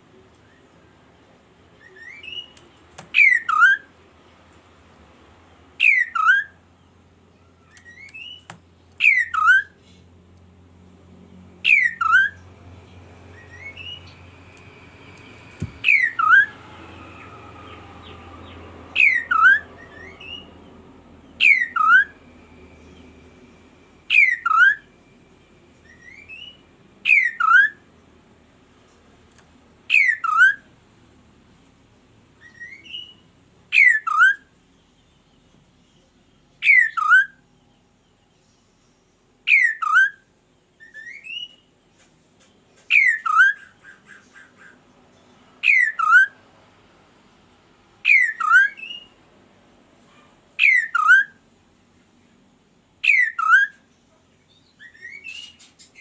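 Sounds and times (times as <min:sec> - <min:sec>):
bird whistled falling call: 0:15.6 - 0:16.5.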